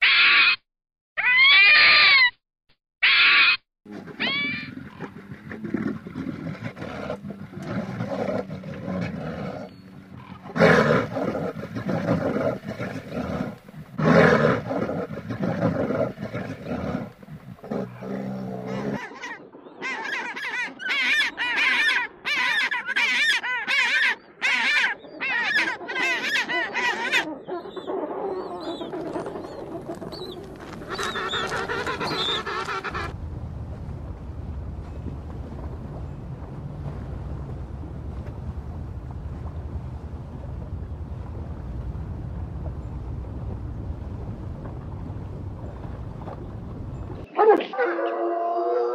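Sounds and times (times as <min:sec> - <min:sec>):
short high animal calls: 0:03.0 - 0:03.6
low rough animal calls: 0:03.0 - 0:33.2.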